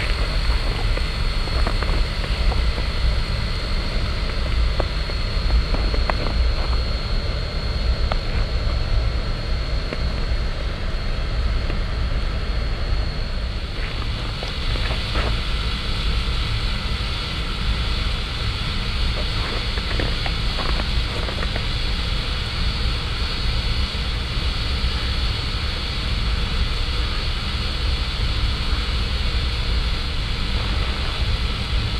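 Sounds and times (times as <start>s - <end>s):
steam locomotive rumbling: 30.2s - 31.9s.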